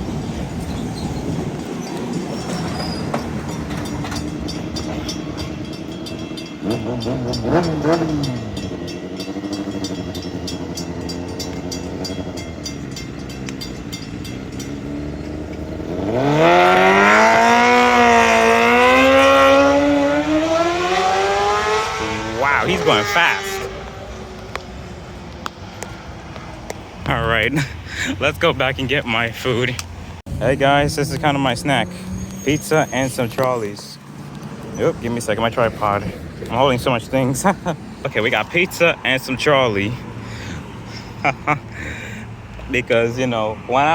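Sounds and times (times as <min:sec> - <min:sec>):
electric train passing: 0:00.0 - 0:27.0
crossing bells ticking: 0:00.2 - 0:29.8, 0:30.6 - 0:42.6.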